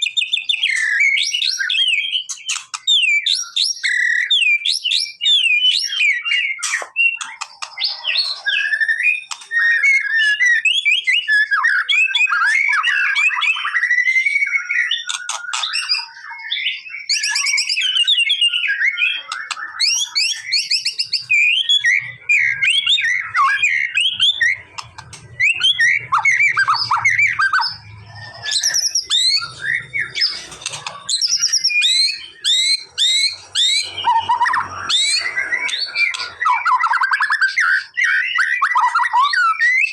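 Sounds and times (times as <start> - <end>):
songbird singing whistles and trills: 0.0 - 39.9.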